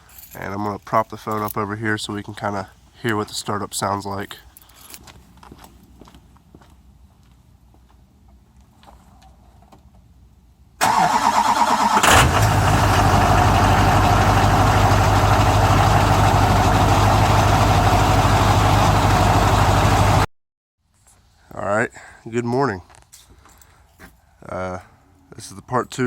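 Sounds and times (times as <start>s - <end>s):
starter motor cranking: 10.8s - 17.7s
diesel engine idling: 10.8s - 20.3s.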